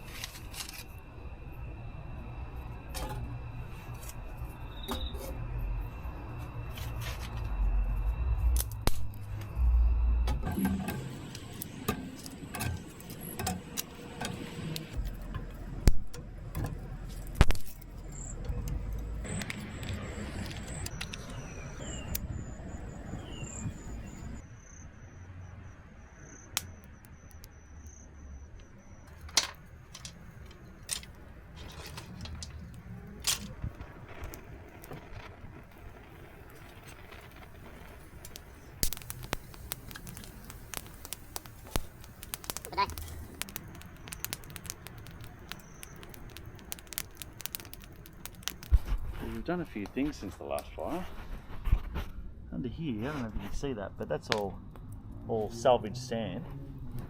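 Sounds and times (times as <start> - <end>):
objects clicking and clattering: 29.1 - 33.7.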